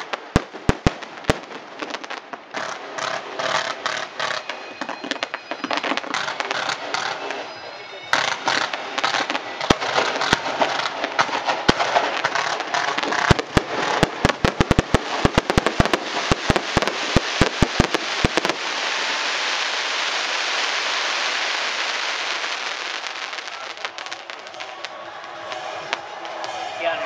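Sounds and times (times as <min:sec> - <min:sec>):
fireworks bangs: 0:00.0 - 0:27.0
fireworks crackling: 0:00.0 - 0:27.0
steady hiss: 0:12.0 - 0:27.0.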